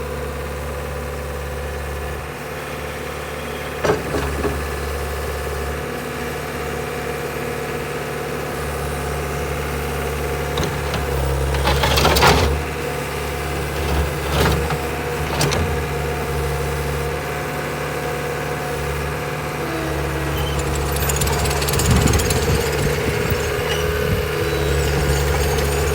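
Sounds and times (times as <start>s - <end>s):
diesel engine running: 8.3s - 25.9s
metallic clanks and knocks: 10.4s - 17.0s, 20.2s - 25.9s.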